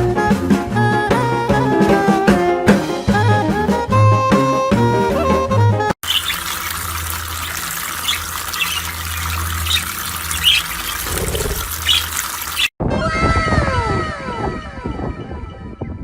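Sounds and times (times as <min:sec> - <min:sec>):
running water: 0:06.0 - 0:12.8.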